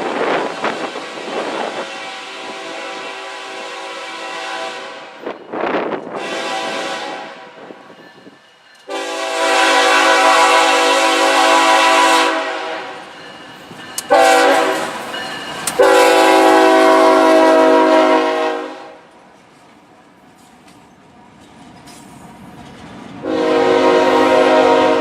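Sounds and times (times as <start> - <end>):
locomotive air horn blasts: 0.3 - 5.3, 6.1 - 7.7, 8.9 - 13.1, 14.1 - 15.0, 15.7 - 19.1, 23.2 - 25.0.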